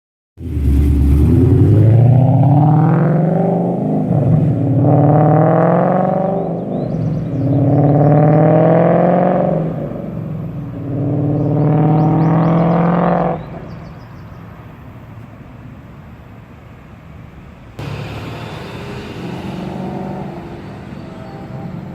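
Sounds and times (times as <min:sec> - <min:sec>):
car engine revving: 0:00.4 - 0:13.7, 0:17.8 - 0:21.9.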